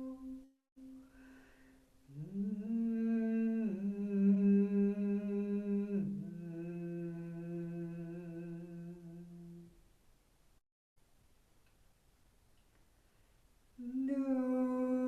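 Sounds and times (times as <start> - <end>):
soft breath: 0.9 - 2.2
person humming low notes: 2.1 - 9.7.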